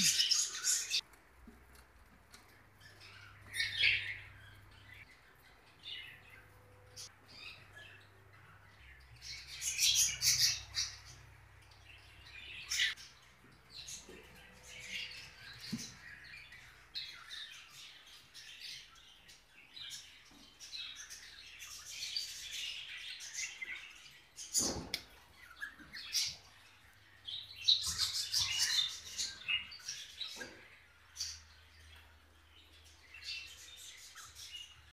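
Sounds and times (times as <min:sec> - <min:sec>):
parrots chirping and squawking: 0:00.0 - 0:01.0.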